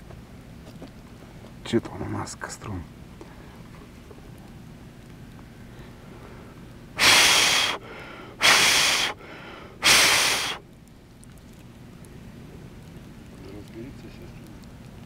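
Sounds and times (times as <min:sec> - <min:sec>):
person blowing hard on fire: 0:07.0 - 0:10.6.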